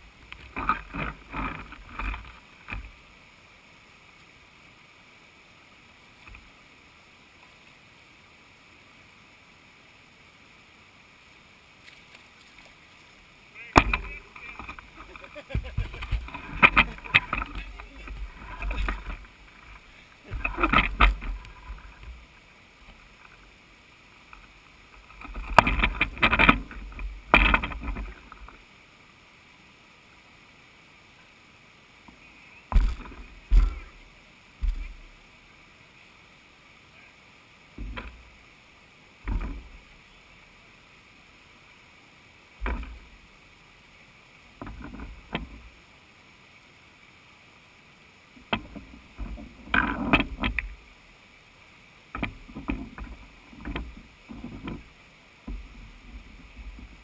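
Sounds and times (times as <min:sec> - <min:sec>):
water splashing: 0:00.0 - 0:03.4, 0:11.7 - 0:28.8, 0:32.0 - 0:35.4, 0:37.6 - 0:41.6, 0:42.5 - 0:45.9
faint hiss: 0:00.0 - 0:57.0.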